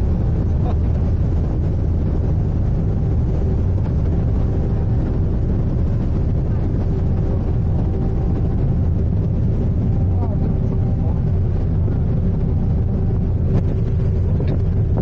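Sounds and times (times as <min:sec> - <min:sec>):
ship engine low rumble: 0:00.0 - 0:15.0.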